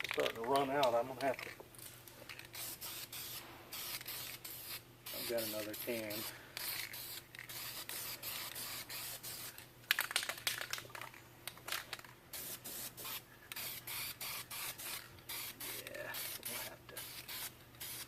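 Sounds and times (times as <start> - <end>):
spray can hissing: 2.4 - 9.6, 12.3 - 18.0.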